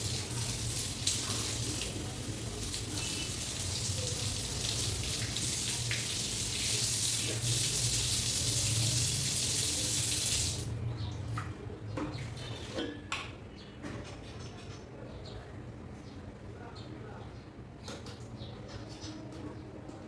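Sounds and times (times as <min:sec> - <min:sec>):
tap water splashing over hair: 0:00.0 - 0:10.7.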